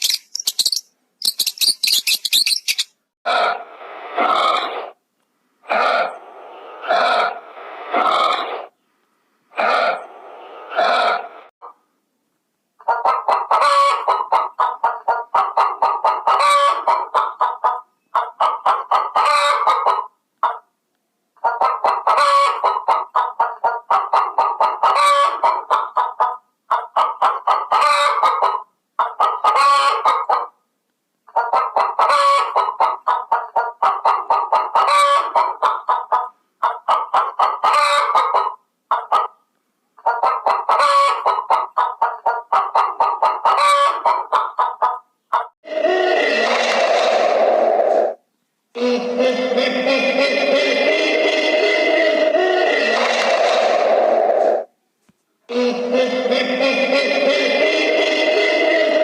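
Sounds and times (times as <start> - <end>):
chickens clucking: 6.8 - 8.7, 9.6 - 11.8, 12.8 - 20.7, 21.4 - 30.6, 31.3 - 39.4, 40.0 - 48.2.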